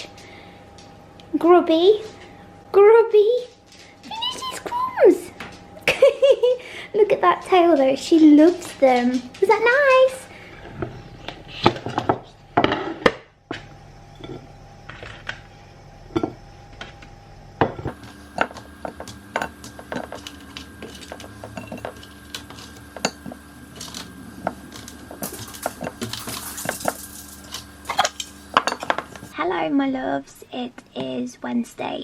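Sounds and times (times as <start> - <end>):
dishes and cutlery clinking: 17.7 - 29.3.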